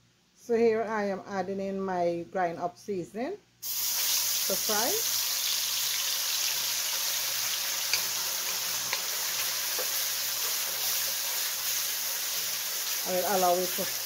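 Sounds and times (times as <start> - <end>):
paste sizzling in hot oil: 3.6 - 14.0
wooden spoon stirring: 7.9 - 12.3.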